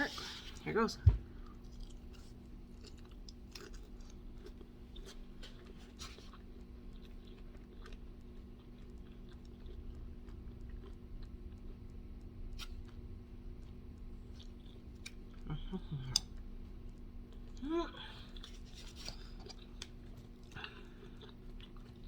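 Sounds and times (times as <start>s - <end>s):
faint steady hum: 0.0s - 22.0s
small clicks and mouth sounds: 1.4s - 13.0s, 13.6s - 17.6s
person chewing: 1.4s - 22.0s.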